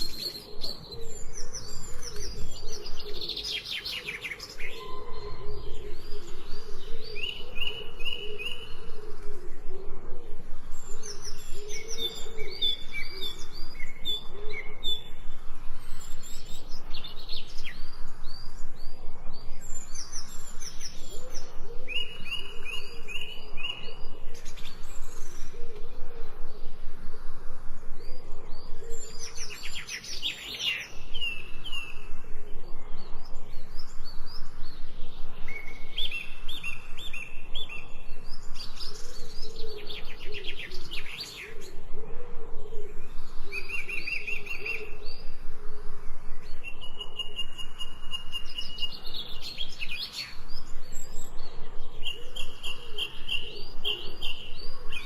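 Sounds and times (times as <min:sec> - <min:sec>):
birds chirping: 0:00.0 - 0:42.0
lower bird calls: 0:00.0 - 0:55.0.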